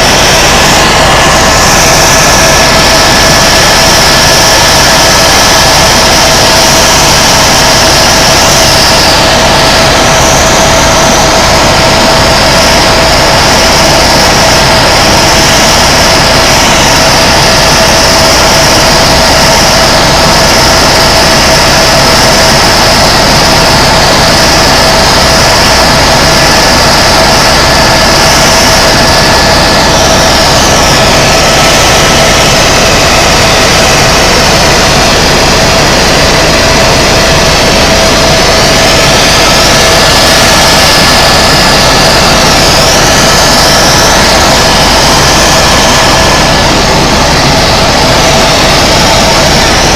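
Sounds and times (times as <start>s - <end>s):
helicopter turbine and rotor noise: 0.0s - 49.9s
high whine wavering in pitch: 0.0s - 49.9s.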